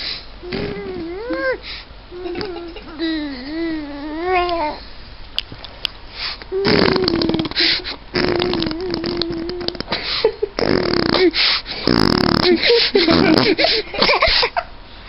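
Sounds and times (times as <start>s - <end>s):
baby blowing raspberries: 0.4s - 1.2s, 6.2s - 10.0s, 10.6s - 13.7s.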